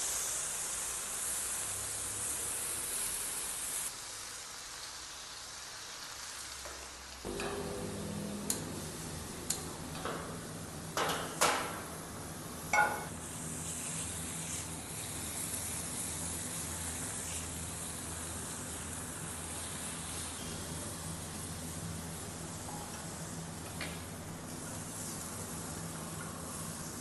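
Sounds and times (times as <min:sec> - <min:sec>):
chicken sizzling on a griddle: 0:00.0 - 0:27.0
metal clanks: 0:07.3 - 0:08.8, 0:12.7 - 0:13.1.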